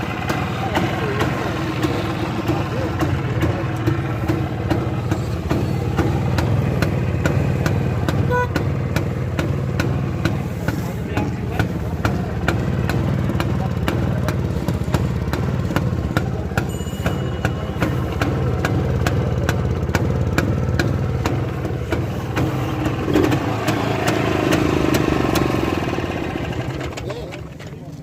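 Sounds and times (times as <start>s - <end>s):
motorcycle engine idling: 0.0s - 28.0s
sharp regular clicks: 0.3s - 17.2s.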